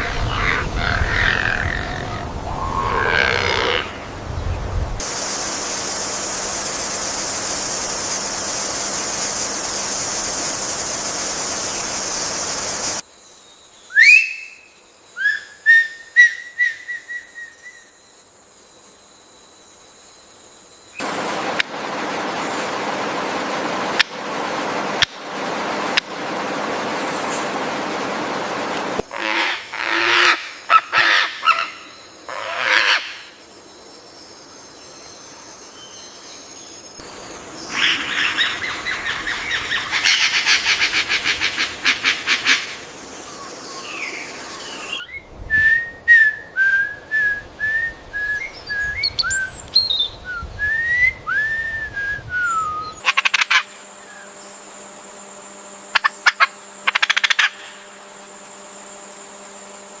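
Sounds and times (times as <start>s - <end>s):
bird whistled notes: 45.0s - 53.0s.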